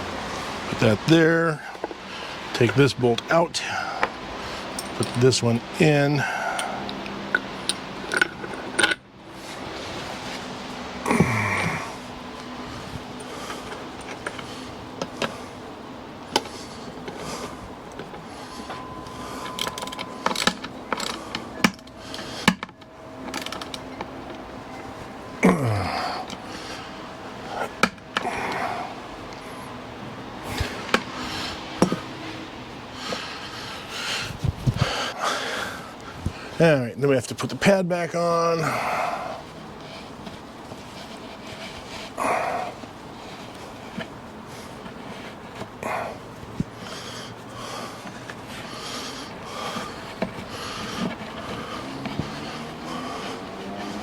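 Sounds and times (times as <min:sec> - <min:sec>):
wooden parts clicking and knocking: 0:19.4 - 0:24.4
soft rustling: 0:33.2 - 0:35.0.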